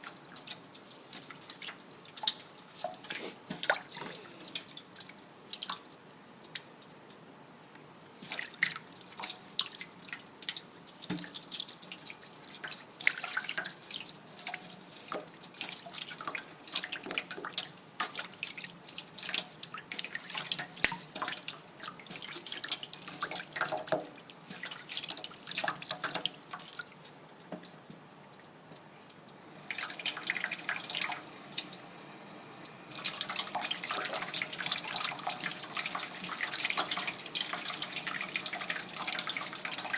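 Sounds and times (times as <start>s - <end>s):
tap water running into sink: 22.1s - 26.7s, 32.9s - 39.9s.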